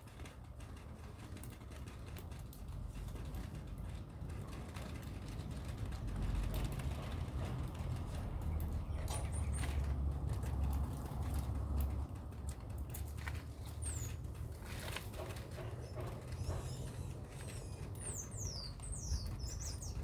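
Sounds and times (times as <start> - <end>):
clicks and scratching: 0.0 - 20.0
birds chirping: 8.0 - 10.1, 13.4 - 20.0.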